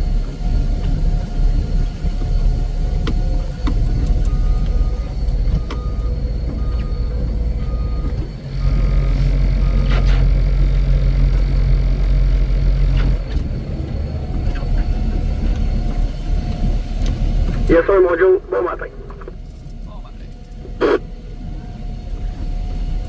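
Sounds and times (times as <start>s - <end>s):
heavy machine engine running: 0.0s - 23.0s
backup alarm beeping: 17.6s - 19.4s, 20.8s - 21.0s.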